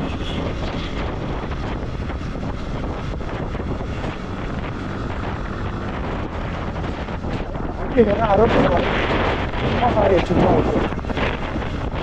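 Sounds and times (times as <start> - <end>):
motorcycle engine and road noise: 0.0 - 12.0
wind rushing over microphone: 0.0 - 12.0.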